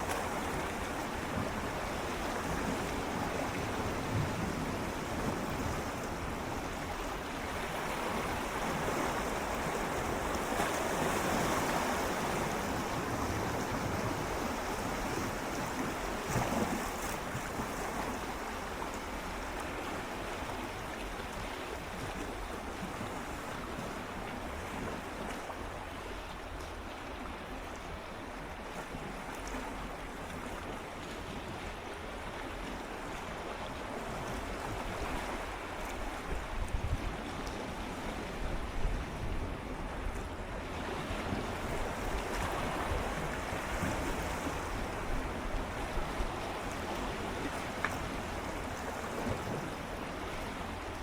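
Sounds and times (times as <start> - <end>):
wind rumble on microphone: 0.0 - 18.4, 33.6 - 51.0
sea waves lapping against rocks: 0.0 - 51.0.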